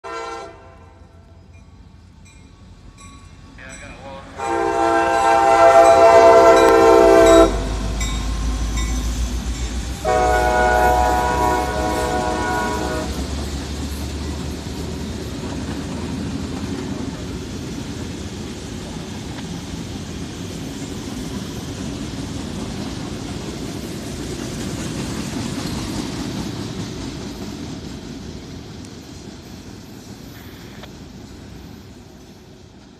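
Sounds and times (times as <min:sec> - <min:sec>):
locomotive horn blasts: 0:00.0 - 0:01.2, 0:04.3 - 0:08.0, 0:10.0 - 0:13.2
diesel engines rumbling: 0:00.6 - 0:25.8
wheels rolling on rail: 0:00.9 - 0:32.9.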